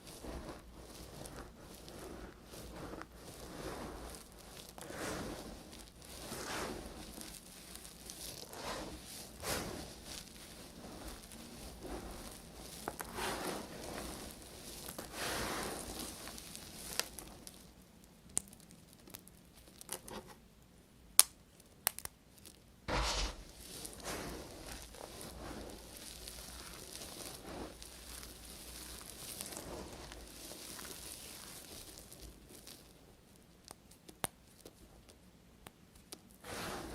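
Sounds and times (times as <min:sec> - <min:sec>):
low thump: 0:22.9 - 0:23.5.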